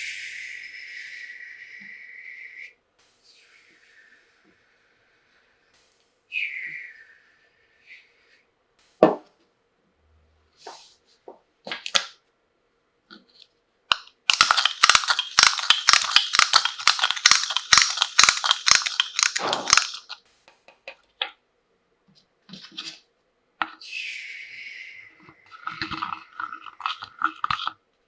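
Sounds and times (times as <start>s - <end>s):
plastic packaging crinkling: 14.3s - 20.2s.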